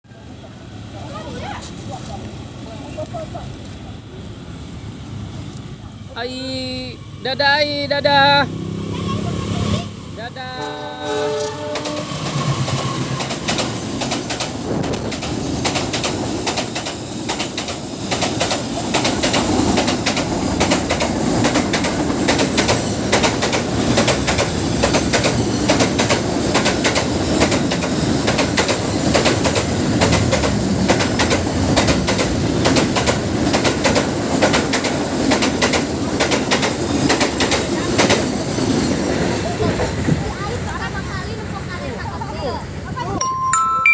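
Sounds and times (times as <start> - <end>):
train wheels rumbling on rails: 11.3 - 42.8.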